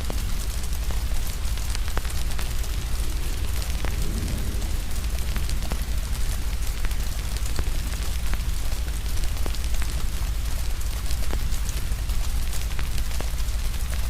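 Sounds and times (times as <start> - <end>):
low rumble: 0.0 - 9.6
fire crackling and popping: 0.0 - 14.0
rain hiss: 0.0 - 14.0.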